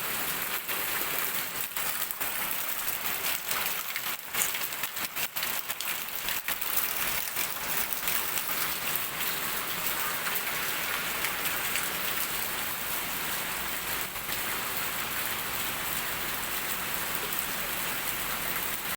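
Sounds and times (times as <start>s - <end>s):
heavy rain falling: 0.0s - 18.9s.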